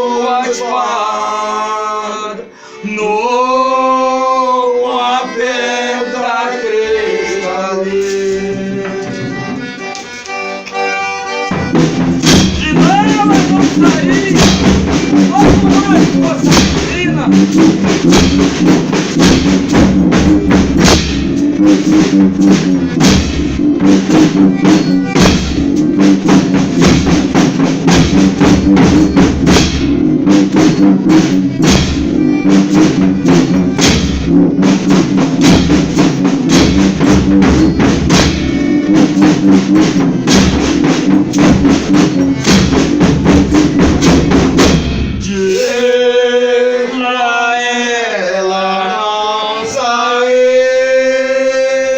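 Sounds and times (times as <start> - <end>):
voices singing: 0.0 - 10.9, 12.4 - 18.8, 45.2 - 51.9
held instrumental notes: 4.8 - 46.1
fast drum beats: 11.4 - 45.9.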